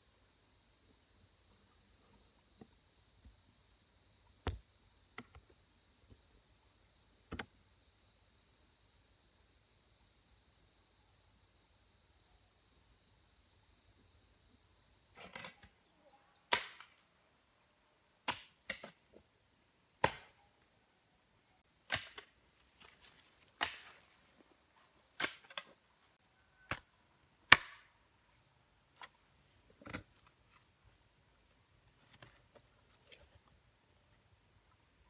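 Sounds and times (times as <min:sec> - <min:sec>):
hand tool striking wood: 0:21.9 - 0:22.3, 0:23.6 - 0:24.0, 0:27.5 - 0:27.9.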